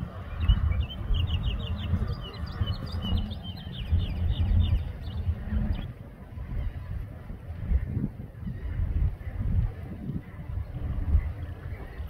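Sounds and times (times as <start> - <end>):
wind rumble on microphone: 0.0 - 12.0
small birds chirping: 0.1 - 5.9.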